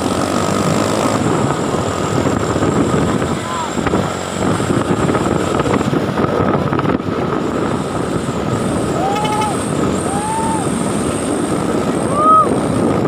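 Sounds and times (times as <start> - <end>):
truck driving at speed: 0.0 - 13.0
short rising and falling tones: 9.0 - 9.7.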